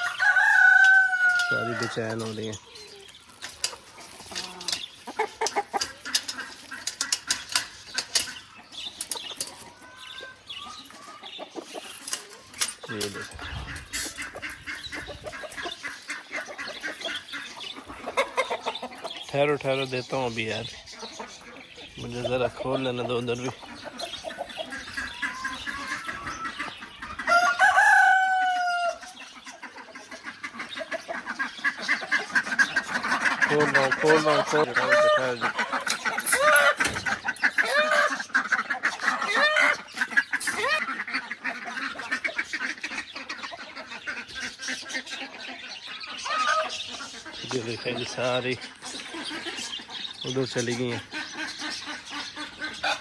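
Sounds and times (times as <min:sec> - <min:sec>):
rooster crowing loudly: 0:00.0 - 0:02.0, 0:27.3 - 0:29.1
hens clucking: 0:00.0 - 0:53.0.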